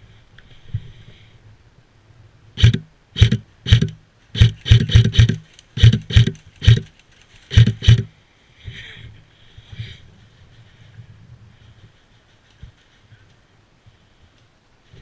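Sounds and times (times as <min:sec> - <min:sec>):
airsoft gun shots: 0:02.6 - 0:06.8, 0:07.5 - 0:08.1.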